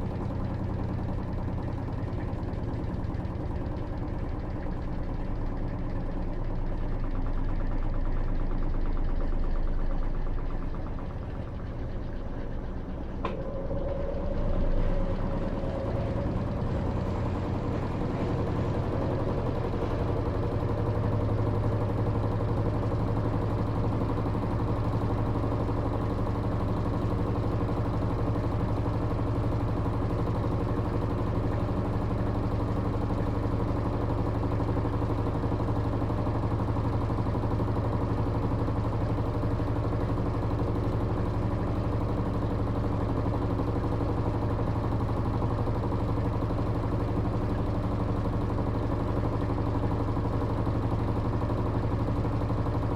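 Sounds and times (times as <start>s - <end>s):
washing machine motor hum: 10.4s - 26.7s.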